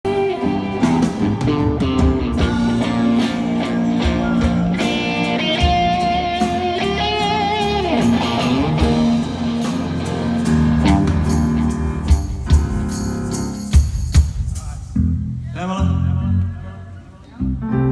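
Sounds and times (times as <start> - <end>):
live rock band playing: 0.0 - 15.2
electric guitar: 0.1 - 13.6.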